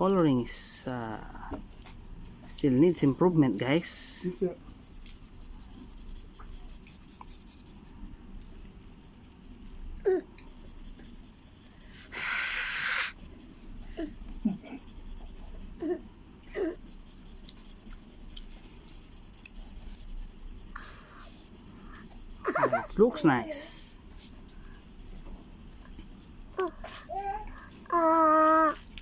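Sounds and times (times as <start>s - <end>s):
crayon scratching on paper: 0.3s - 8.1s, 8.8s - 15.8s, 16.5s - 27.0s
hiss: 11.5s - 13.2s.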